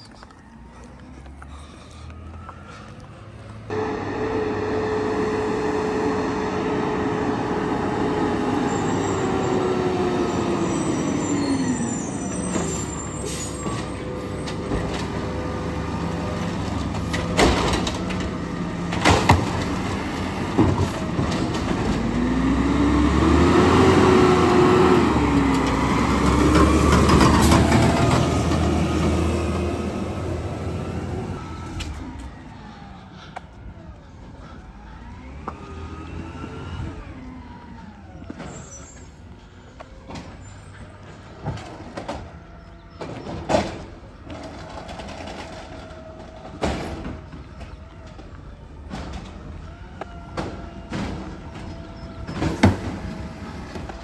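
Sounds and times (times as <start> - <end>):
garbage truck running: 3.6 - 54.0
whining tone: 3.7 - 18.8.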